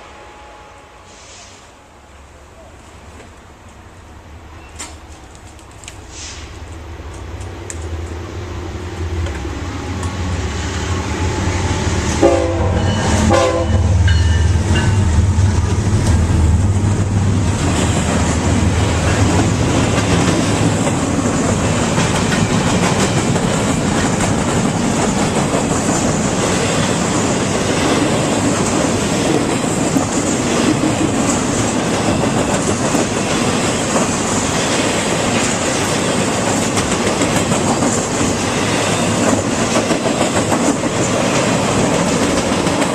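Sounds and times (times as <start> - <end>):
wheels clacking on rails: 9.2 - 42.9
locomotive horn blasts: 12.2 - 14.1.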